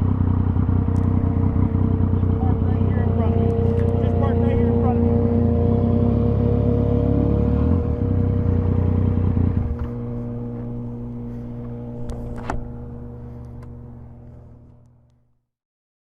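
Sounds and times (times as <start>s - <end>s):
motorcycle engine idling: 0.0s - 5.5s, 8.0s - 15.1s.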